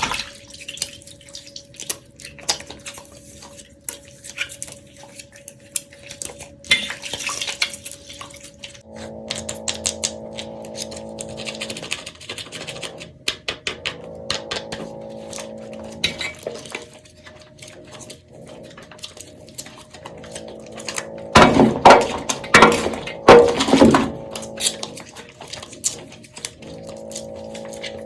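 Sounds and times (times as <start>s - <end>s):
dry soap crunching: 0.0s - 28.0s.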